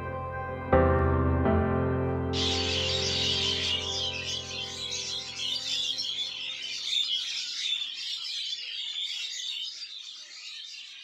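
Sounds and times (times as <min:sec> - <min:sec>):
background music held notes: 0:00.0 - 0:06.6
many small birds chirping: 0:02.4 - 0:11.0.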